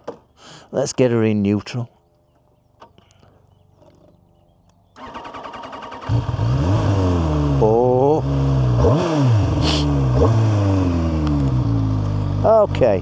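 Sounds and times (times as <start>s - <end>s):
motorcycle engine revving: 5.0s - 13.0s.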